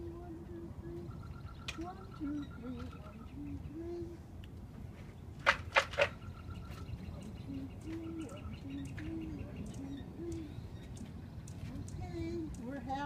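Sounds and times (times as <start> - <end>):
harsh bird calls: 0.9 - 4.2, 5.3 - 12.8
soft low cooing: 7.5 - 10.8.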